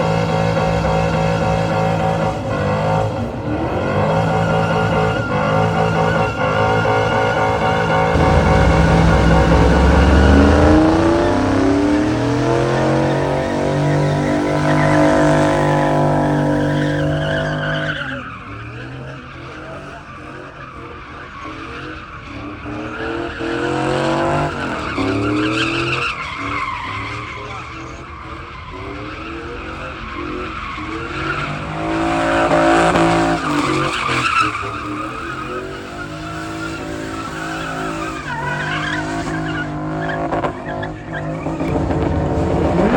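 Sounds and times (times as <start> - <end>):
car engine revving hard: 0.0 - 17.5, 40.0 - 42.9
tires squealing and skidding: 0.0 - 42.9.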